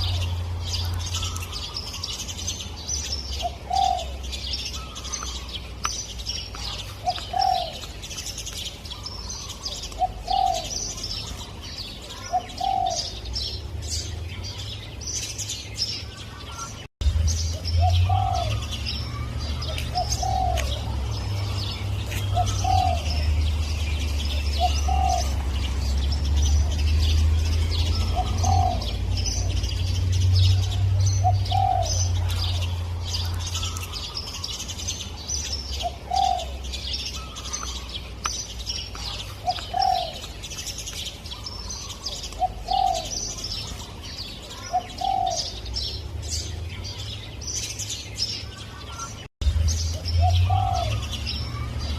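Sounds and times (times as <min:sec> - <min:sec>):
small birds chirping: 0:00.0 - 0:51.9
dove cooing: 0:03.4 - 0:05.3, 0:06.6 - 0:08.0, 0:09.0 - 0:13.2, 0:17.8 - 0:23.3, 0:24.2 - 0:25.5, 0:27.8 - 0:29.6, 0:30.5 - 0:33.8, 0:35.8 - 0:36.6, 0:39.1 - 0:40.3, 0:41.4 - 0:43.4, 0:44.6 - 0:45.6, 0:50.2 - 0:51.7.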